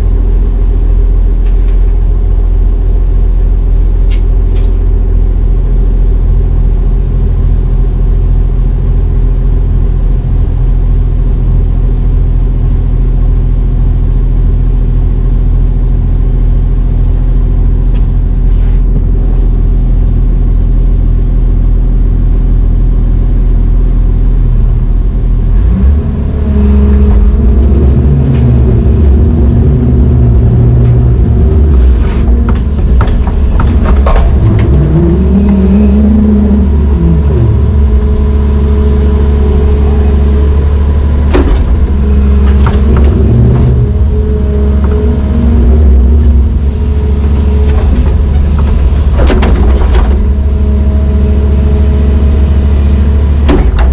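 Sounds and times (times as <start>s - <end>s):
diesel engine idling and revving: 0.0s - 53.9s
knocks and clanks: 26.9s - 38.1s, 41.2s - 50.6s, 53.4s - 53.9s.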